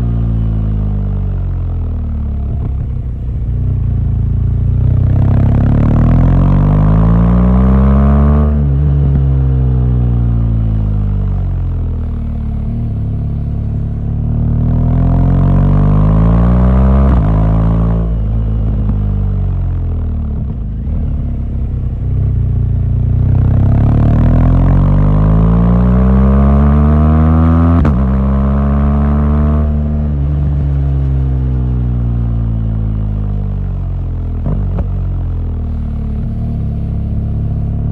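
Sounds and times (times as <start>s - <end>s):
motorcycle engine accelerating: 0.0s - 37.9s.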